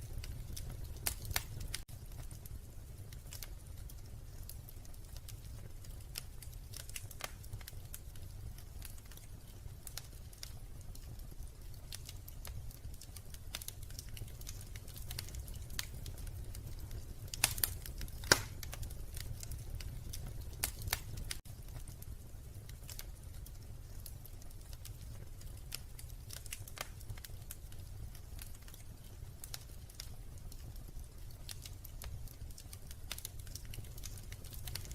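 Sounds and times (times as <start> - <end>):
wood fire crackling: 0.0 - 34.9.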